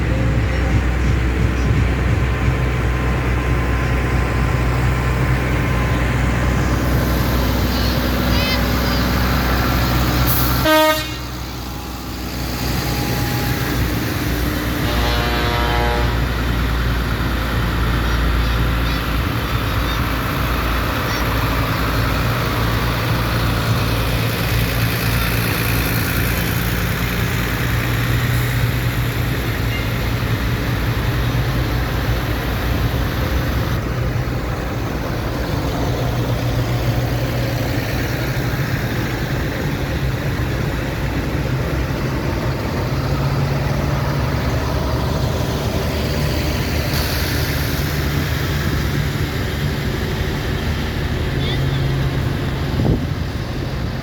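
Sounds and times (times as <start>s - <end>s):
tractor engines running: 0.0s - 54.0s
horn toot: 10.3s - 11.5s, 14.5s - 16.4s.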